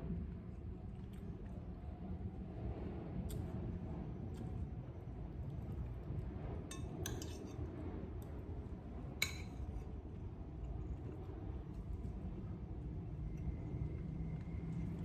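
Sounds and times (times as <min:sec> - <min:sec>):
cutlery clinking on plate: 0:06.7 - 0:07.4.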